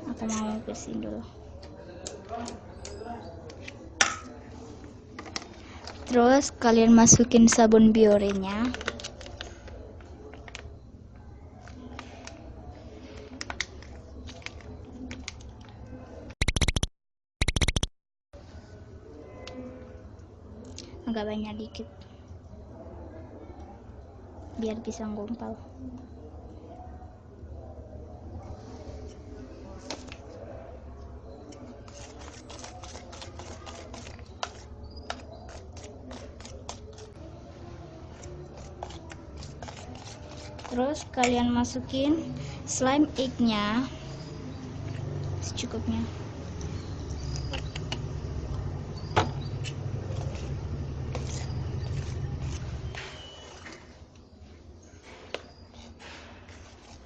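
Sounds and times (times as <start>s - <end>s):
pitched sound effect: 16.4s - 17.9s
spoon stirring sticky slime: 31.5s - 37.2s, 38.0s - 41.8s.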